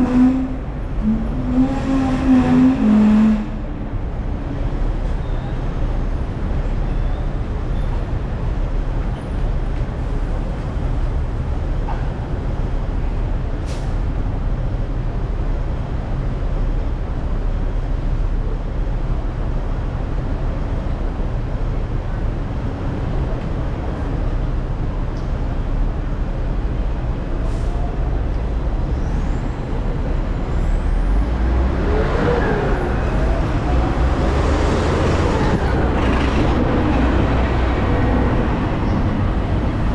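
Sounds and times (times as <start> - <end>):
tram rumbling on rails: 0.0 - 39.9.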